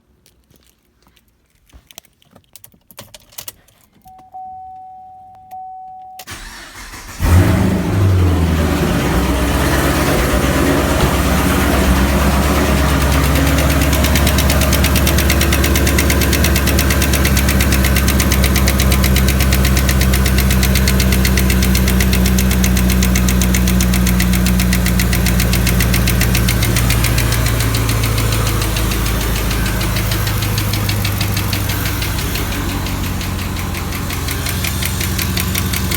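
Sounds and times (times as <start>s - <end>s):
car engine starting and idling: 6.2s - 35.9s
fast even ticking: 10.0s - 35.9s.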